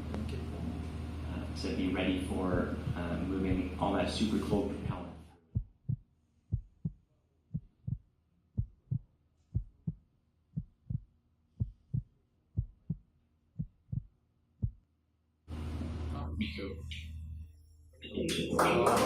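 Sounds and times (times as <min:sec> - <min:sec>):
heartbeat double thump: 0:02.5 - 0:03.8, 0:04.8 - 0:08.0, 0:08.6 - 0:10.0, 0:10.6 - 0:13.0, 0:13.6 - 0:14.8.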